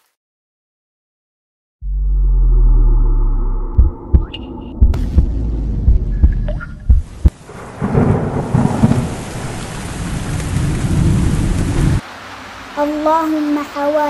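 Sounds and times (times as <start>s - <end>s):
low thumps: 1.8s - 9.0s
low rolling thunder: 3.6s - 12.0s
heavy rain: 5.0s - 14.0s.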